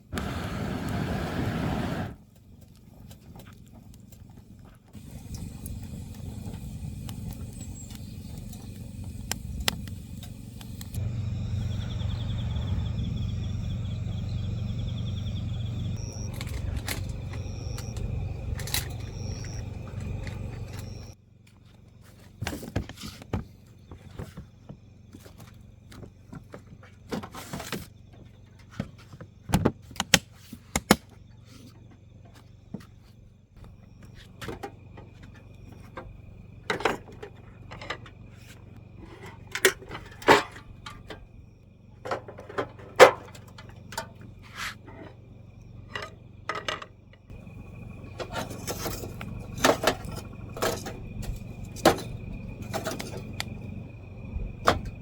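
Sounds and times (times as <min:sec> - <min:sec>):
steady low hum: 0:00.0 - 0:21.2, 0:33.2 - 0:55.0.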